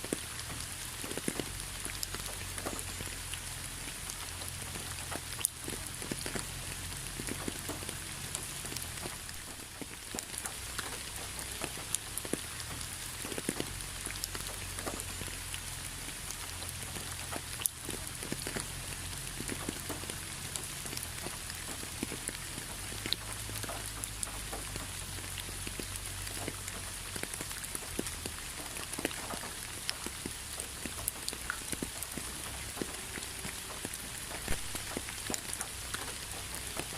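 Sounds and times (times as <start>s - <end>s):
rain drops pattering: 0.0s - 36.9s
steady rain hiss: 0.0s - 36.9s.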